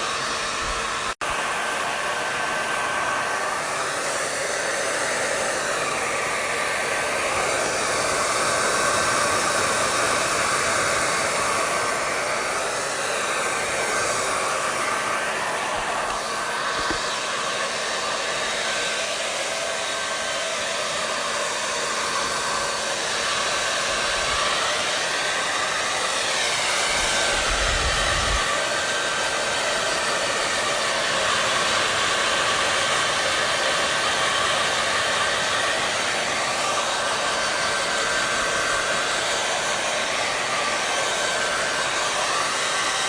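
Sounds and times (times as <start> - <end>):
hair dryer blowing: 0.0 - 43.0.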